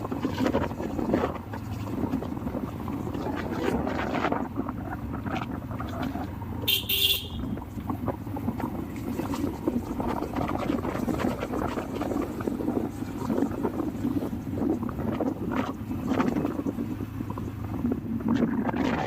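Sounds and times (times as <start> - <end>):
vehicle rumbling: 0.0 - 19.0
wind on microphone: 0.0 - 19.0
short horn toot: 6.7 - 7.6.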